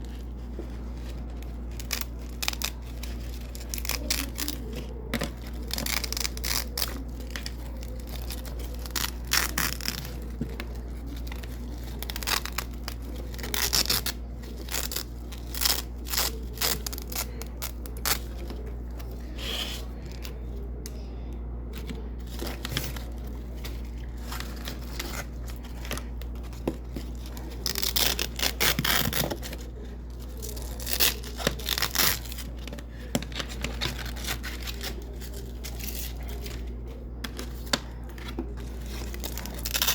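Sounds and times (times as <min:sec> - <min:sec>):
steady low hum: 0:00.0 - 0:39.9
velcro strips ripping apart: 0:39.2 - 0:39.9.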